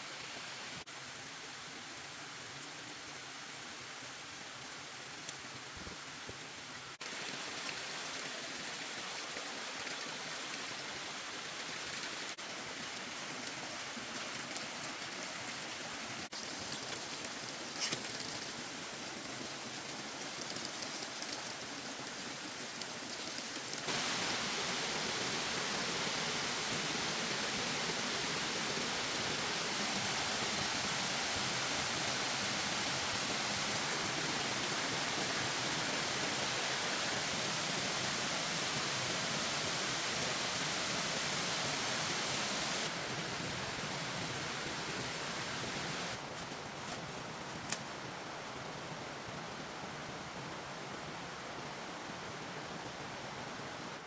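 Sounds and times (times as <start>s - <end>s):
rain hissing: 22.6s - 47.8s.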